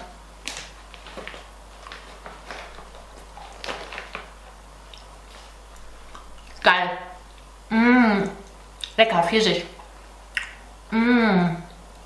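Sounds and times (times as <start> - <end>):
person chewing dried fruit: 0.0 - 7.6.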